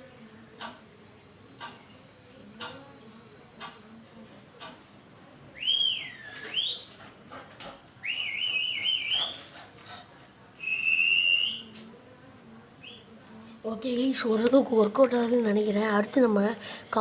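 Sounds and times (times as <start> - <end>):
high-pitched whistle tones: 5.6 - 7.0, 8.0 - 9.6, 10.6 - 11.9.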